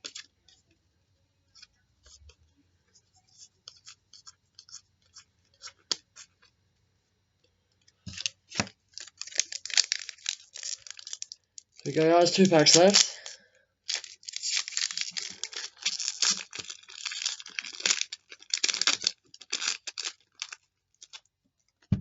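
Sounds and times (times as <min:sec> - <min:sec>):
card pack wrapper crinkling: 0:08.1 - 0:21.2
cards rustling and clicking: 0:08.1 - 0:21.2.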